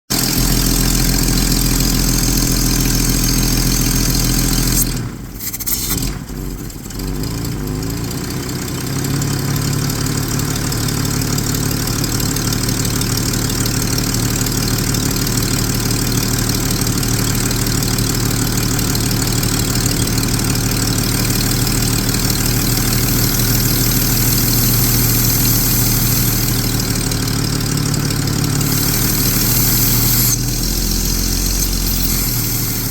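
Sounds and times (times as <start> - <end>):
car engine idling: 9.2 - 32.9.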